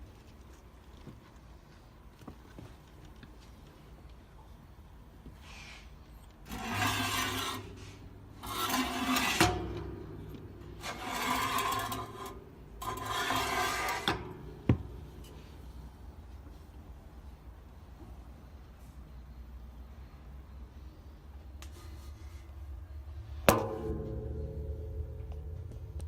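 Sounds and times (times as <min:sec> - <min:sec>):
rubbing scraping strokes: 0:06.5 - 0:09.6, 0:10.8 - 0:14.2.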